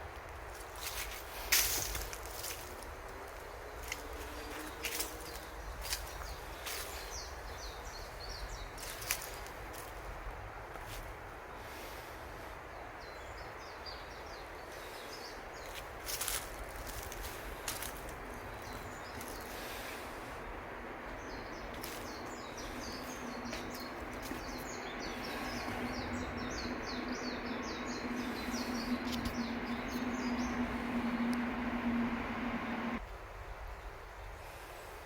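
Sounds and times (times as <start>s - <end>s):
outdoor background noise: 0.0s - 35.0s
low steady hum: 16.8s - 33.0s
bird chirping: 21.1s - 33.0s.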